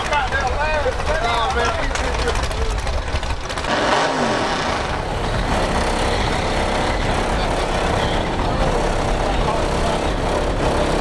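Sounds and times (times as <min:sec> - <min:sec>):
drag car engine revving down: 0:03.5 - 0:11.0.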